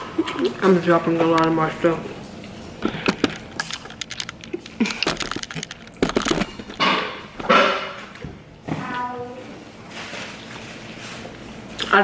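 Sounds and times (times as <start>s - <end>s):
person chewing food: 2.6s - 7.8s
breathy slurping: 2.7s - 5.3s.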